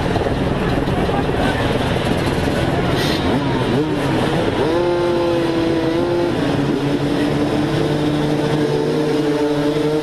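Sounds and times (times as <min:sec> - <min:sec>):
motocross bike engine running: 0:00.0 - 0:10.0.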